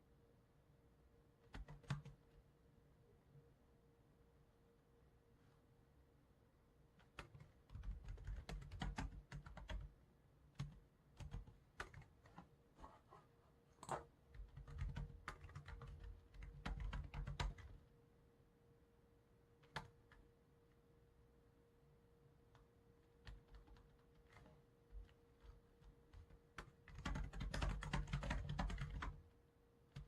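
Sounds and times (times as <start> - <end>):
computer keyboard typing: 1.4 - 2.3, 7.0 - 9.9, 10.6 - 12.5, 13.8 - 17.8, 19.6 - 20.2, 23.1 - 29.2.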